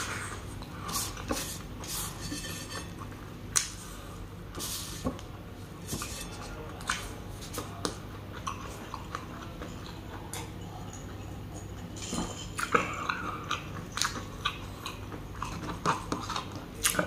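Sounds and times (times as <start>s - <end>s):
person chewing rice: 0.0s - 5.0s, 5.7s - 17.0s
fingers scraping a pan: 1.4s - 3.0s.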